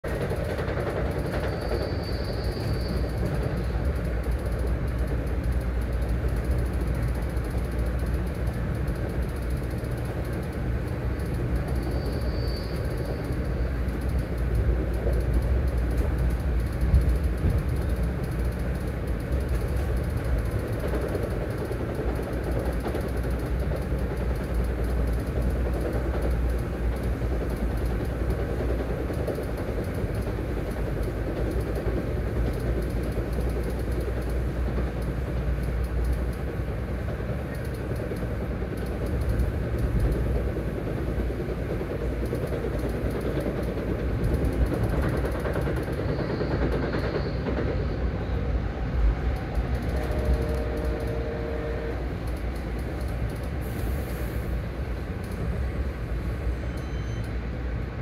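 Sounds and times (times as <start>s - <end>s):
train rumble and rattle: 0.0s - 58.0s
faint high squeal: 1.4s - 3.7s, 11.8s - 13.5s, 56.5s - 57.4s.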